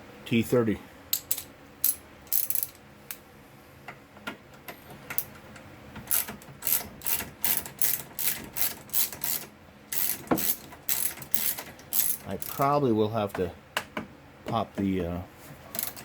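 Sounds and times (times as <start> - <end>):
hand ratchet clicking: 1.1 - 2.8, 6.1 - 12.7, 15.8 - 16.0
metal clicks: 1.1 - 3.2.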